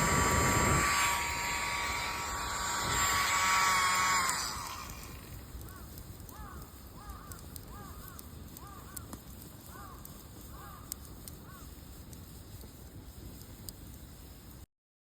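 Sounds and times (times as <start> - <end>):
blower motor winding down: 0.0 - 5.6
faint clicks: 4.2 - 14.6
bird calling: 4.9 - 11.8.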